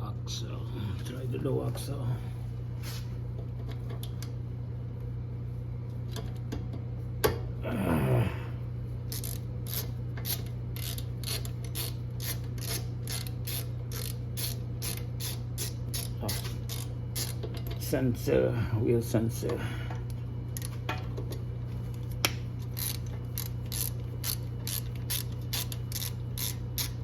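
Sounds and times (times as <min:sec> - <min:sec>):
steady low hum: 0:00.0 - 0:27.0
ratchet wrench clicking: 0:09.1 - 0:17.4, 0:22.2 - 0:27.0.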